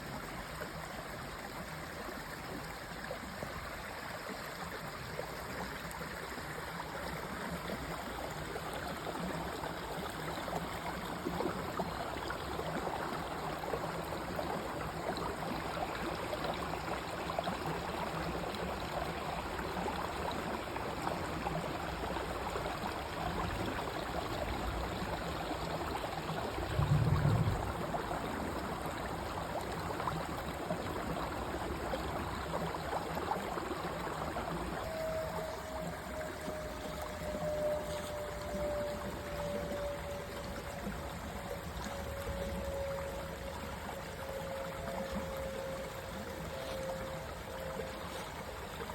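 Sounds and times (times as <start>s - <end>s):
stream flowing over rocks: 0.0s - 48.9s
low rumble: 26.6s - 28.5s.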